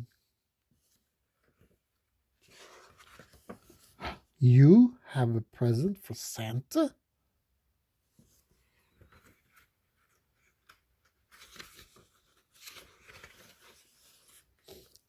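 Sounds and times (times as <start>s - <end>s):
book pages rustling: 0.7s - 4.0s, 8.2s - 15.0s.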